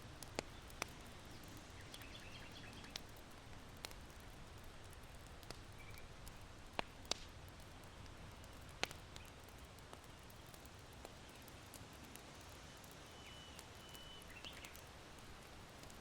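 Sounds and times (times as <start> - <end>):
charcoal embers crackling and popping: 0.0 - 16.0.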